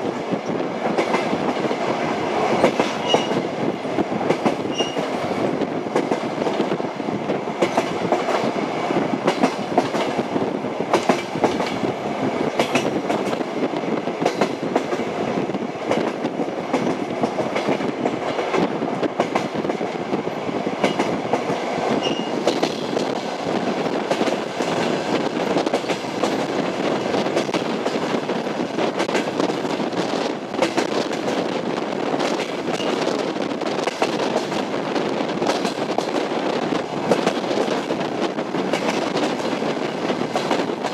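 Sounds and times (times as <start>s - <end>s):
train wheels on rails: 0.0s - 40.9s.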